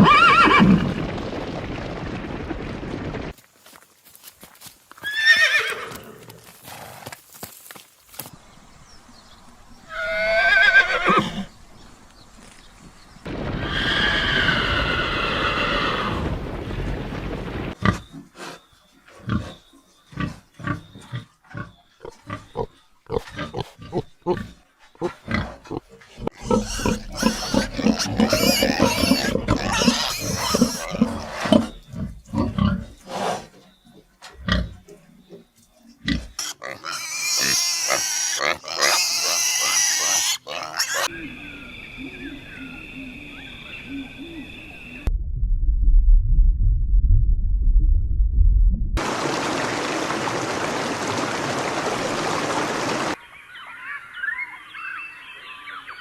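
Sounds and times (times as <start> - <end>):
horse whinnying: 0.0 - 1.0, 5.0 - 6.3, 9.9 - 11.5, 13.6 - 16.2
pigs grunting: 17.8 - 33.6, 34.4 - 41.1.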